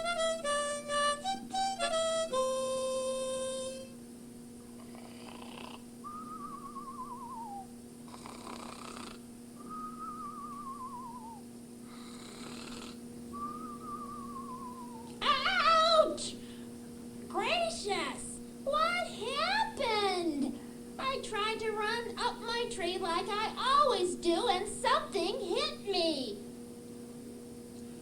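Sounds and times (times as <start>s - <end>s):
cartoon snoring: 4.8s - 5.8s, 8.1s - 9.2s, 11.9s - 13.0s.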